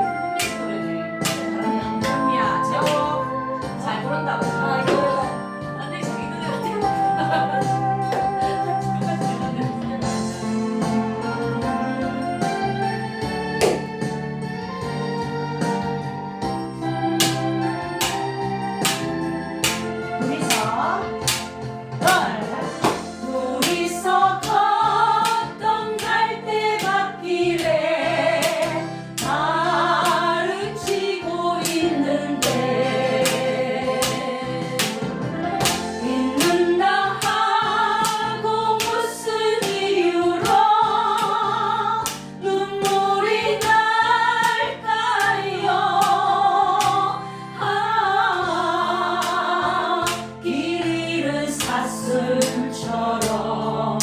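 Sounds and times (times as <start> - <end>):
accompaniment track: 0.0 - 54.0
women singing slow ballad: 21.9 - 54.0.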